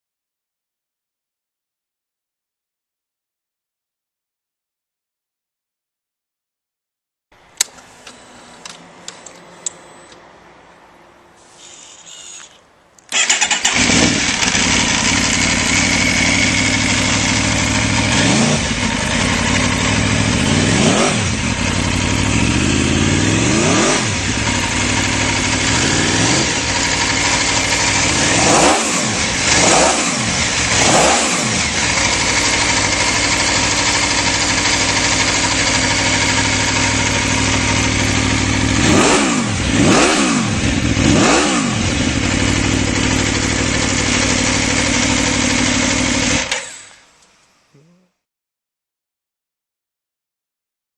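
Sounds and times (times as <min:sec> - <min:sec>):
motorcycle engine revving: 0:13.1 - 0:47.0.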